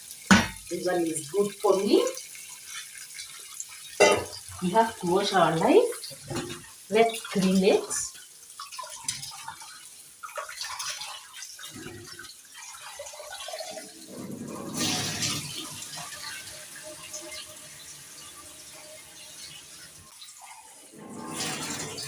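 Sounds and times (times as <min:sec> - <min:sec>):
water running and sloshing: 0:00.0 - 0:22.0
water splash: 0:13.5 - 0:16.1.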